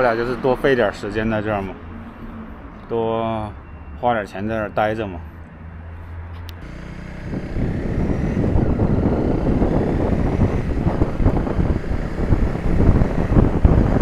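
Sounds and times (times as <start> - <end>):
motorcycle engine: 6.6 - 14.0
wind noise on microphone: 6.6 - 14.0.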